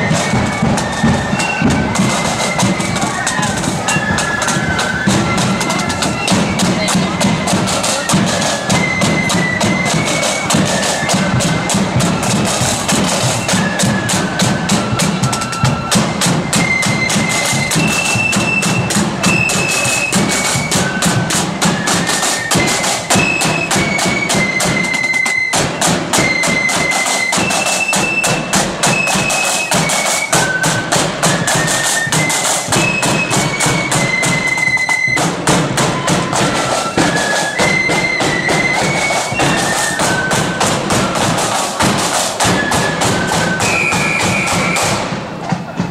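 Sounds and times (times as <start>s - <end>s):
high-pitched melody line: 0.0s - 12.4s
steady low drum: 0.0s - 23.9s
rapid snare drumming: 0.0s - 45.9s.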